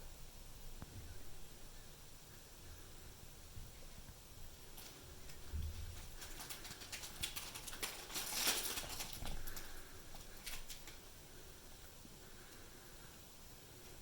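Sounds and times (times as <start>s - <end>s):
cats licking fur: 4.7s - 11.7s.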